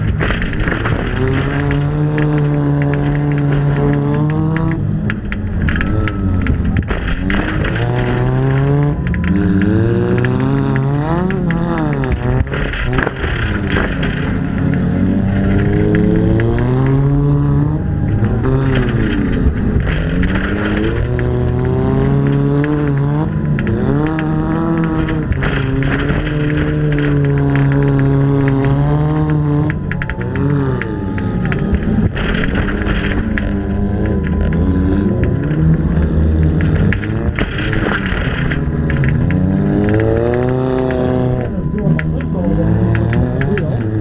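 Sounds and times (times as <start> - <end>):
car engine revving: 0.0 - 44.0
sharp knocks and clatters: 0.0 - 44.0.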